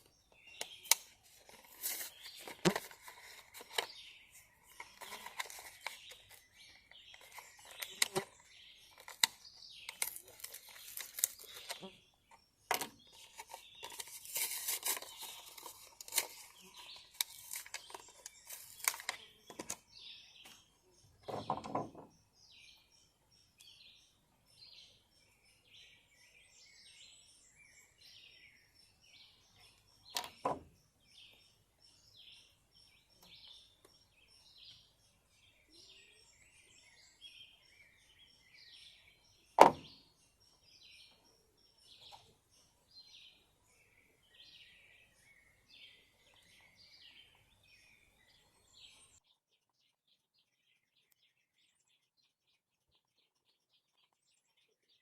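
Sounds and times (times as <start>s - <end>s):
small birds chirping: 0.0s - 55.0s
small objects clicking and rustling: 0.6s - 11.9s, 12.7s - 19.8s.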